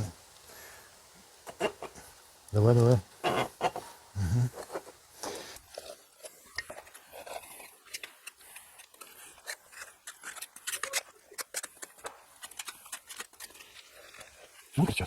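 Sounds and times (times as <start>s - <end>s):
spatulas scraping mastic: 1.5s - 2.0s, 2.8s - 14.8s
bricks clicking together: 6.5s - 14.4s.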